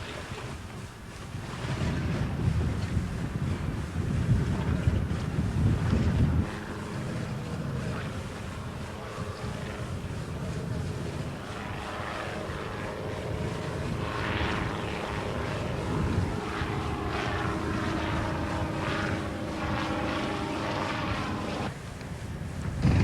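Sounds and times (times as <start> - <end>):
engine droning: 4.6 - 23.0
wind rushing: 22.3 - 23.0.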